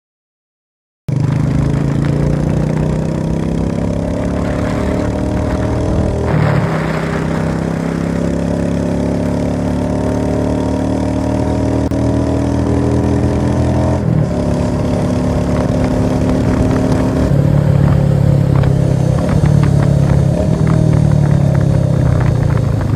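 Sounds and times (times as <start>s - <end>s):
vehicle engine running: 1.1s - 22.9s.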